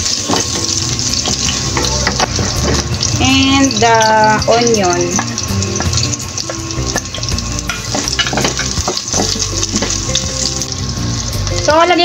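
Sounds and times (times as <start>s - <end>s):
garlic and onion sizzling in oil: 0.0s - 12.0s
wooden spatula knocking pan: 0.1s - 3.0s, 4.8s - 10.2s.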